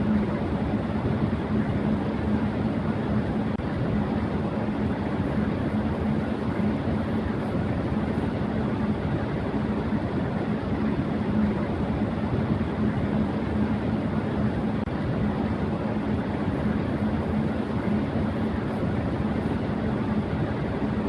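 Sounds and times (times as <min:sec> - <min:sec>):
electric fan running: 0:00.0 - 0:21.0
faint constant hum: 0:00.0 - 0:21.0.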